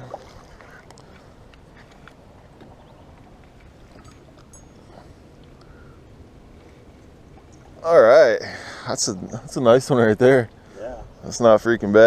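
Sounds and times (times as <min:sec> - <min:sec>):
water beside a boat: 0:00.0 - 0:12.0.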